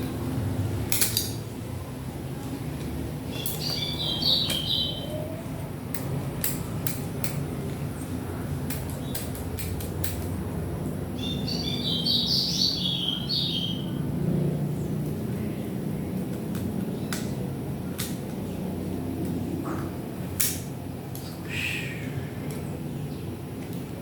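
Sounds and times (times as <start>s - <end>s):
clicks of small parts: 0.9s - 1.4s, 5.9s - 7.4s, 8.7s - 10.4s, 20.4s - 21.3s
bird chirping: 3.3s - 5.4s, 11.1s - 14.0s.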